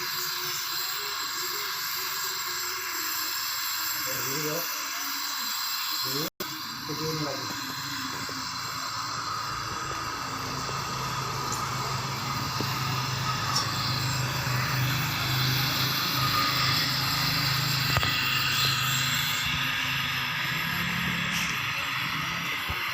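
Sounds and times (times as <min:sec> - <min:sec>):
welding arc hiss: 0:00.0 - 0:22.9
low buzz: 0:06.0 - 0:22.9.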